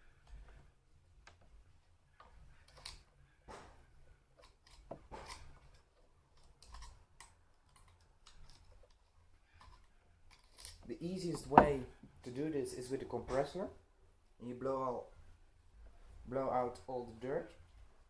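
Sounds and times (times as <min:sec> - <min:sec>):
faint clicks and scrapes of chain: 0:02.1 - 0:03.4, 0:04.3 - 0:11.6.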